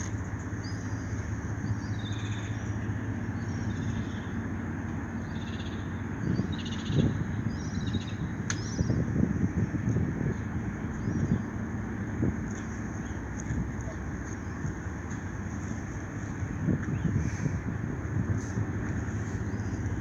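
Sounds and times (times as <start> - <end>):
low mechanical hum: 0.0 - 20.0
small birds chirping: 5.2 - 9.8.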